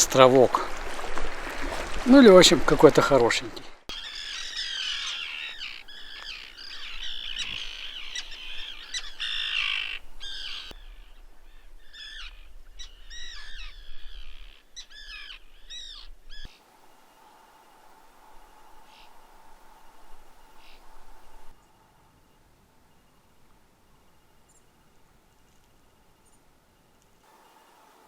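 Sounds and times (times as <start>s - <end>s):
gulls calling: 0.0s - 21.8s
faint steady hum: 14.8s - 28.0s.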